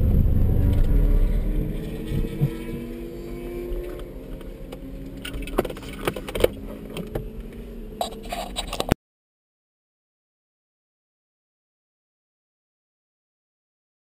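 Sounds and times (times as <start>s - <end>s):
car engine running: 0.0s - 9.0s.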